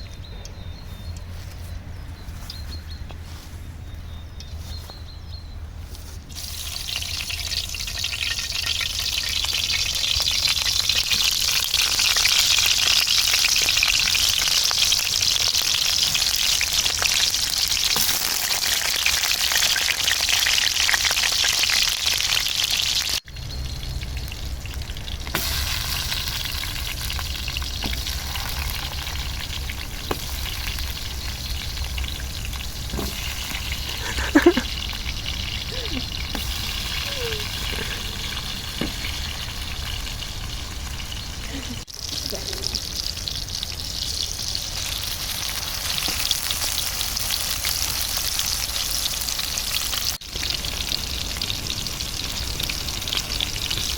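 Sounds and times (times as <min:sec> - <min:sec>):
food sizzling over campfire: 0:06.3 - 0:53.9
low rumble: 0:23.3 - 0:41.8.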